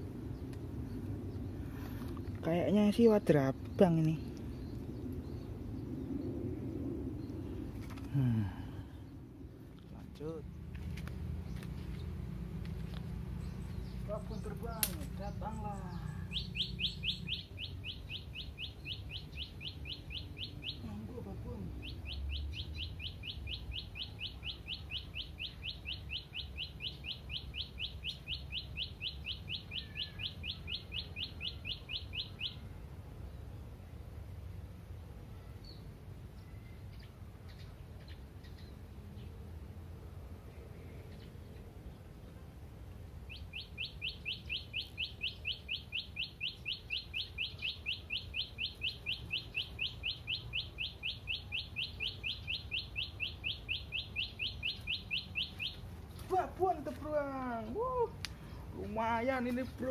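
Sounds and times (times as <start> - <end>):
low wind rumble: 0.0 - 20.7
bird chirping rapidly: 13.3 - 32.6, 43.2 - 58.2.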